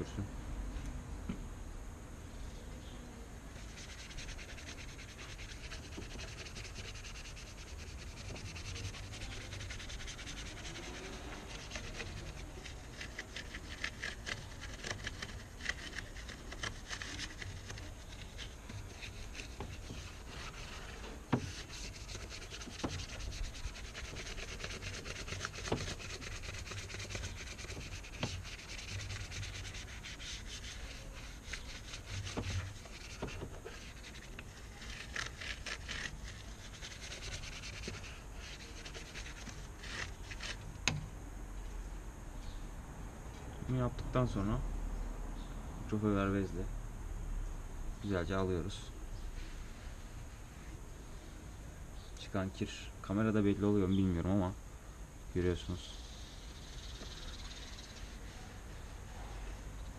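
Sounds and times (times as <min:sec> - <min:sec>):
scrubbing on motorcycle engine: 0:03.6 - 0:40.7.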